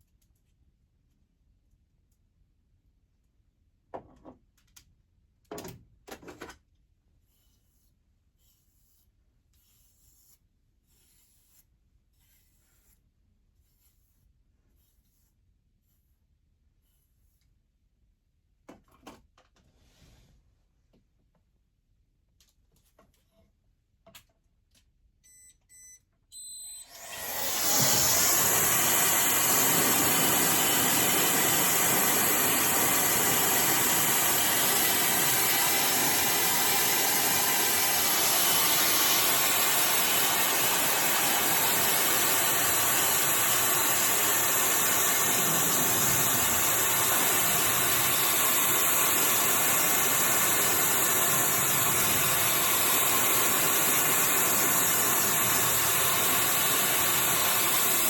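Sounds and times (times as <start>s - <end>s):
hair dryer blowing with whine: 26.8s - 58.0s.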